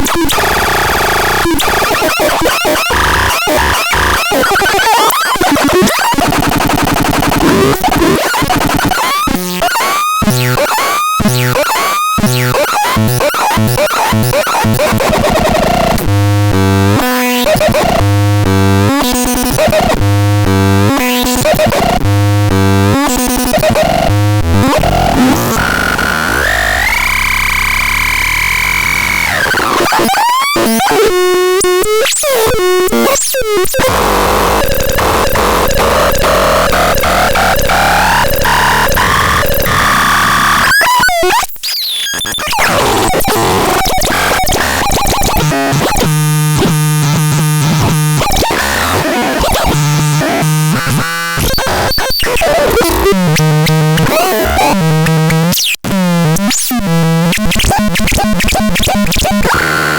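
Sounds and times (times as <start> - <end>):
synthetic tone patterns: 33.8 - 41.2.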